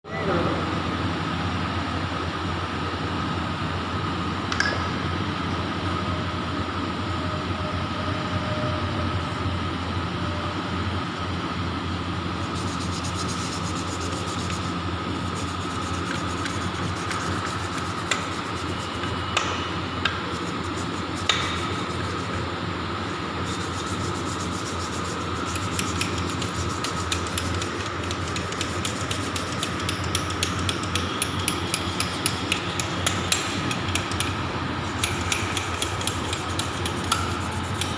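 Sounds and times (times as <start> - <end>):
mechanical hum with high whine: 0.0 - 37.9
fast tapping: 24.0 - 34.3.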